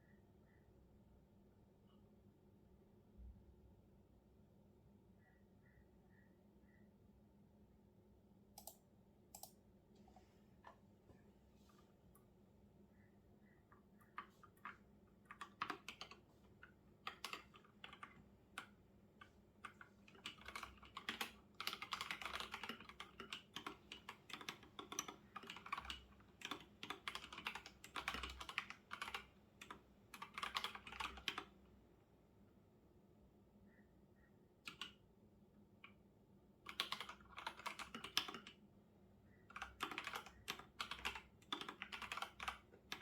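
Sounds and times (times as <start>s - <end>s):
computer keyboard typing: 8.6s - 9.6s, 13.7s - 31.6s, 34.7s - 35.0s, 36.7s - 38.6s, 39.5s - 43.0s.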